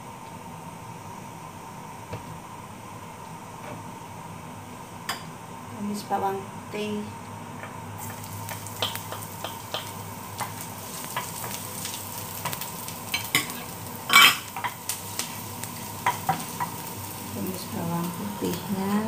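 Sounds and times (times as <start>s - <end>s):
garlic sizzling in oil: 7.6s - 19.0s
spatula tapping and scraping pan: 8.5s - 14.8s, 16.0s - 16.9s.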